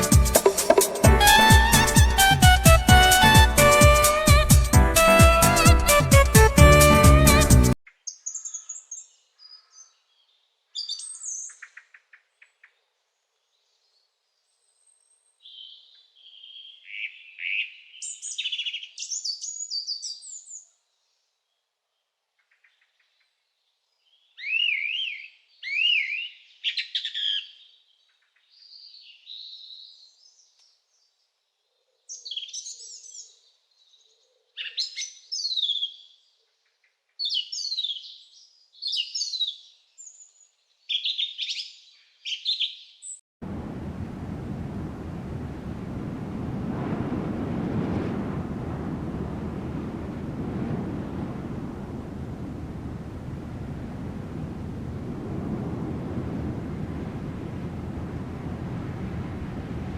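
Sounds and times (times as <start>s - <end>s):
small birds chirping: 8.0s - 12.7s, 22.4s - 43.2s.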